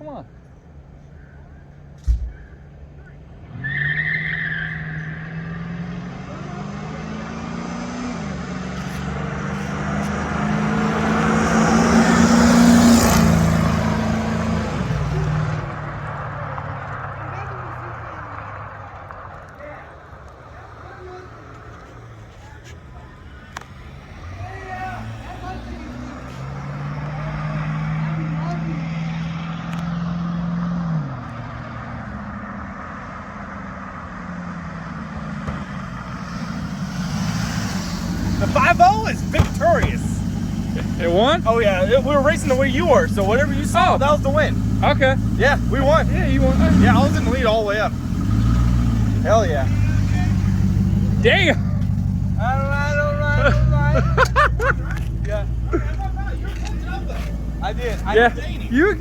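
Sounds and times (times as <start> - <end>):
wind and road noise: 0.0 - 59.0
car engine accelerating hard: 3.1 - 59.0
transmission shifting up: 34.7 - 59.0.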